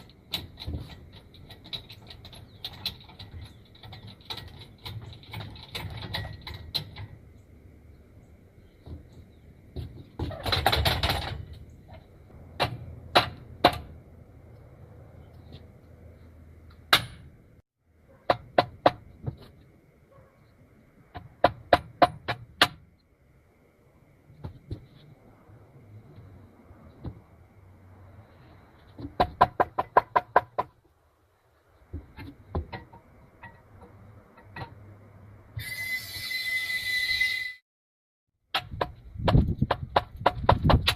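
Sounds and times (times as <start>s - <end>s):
rattling clatter: 0.0s - 7.4s, 9.8s - 14.0s.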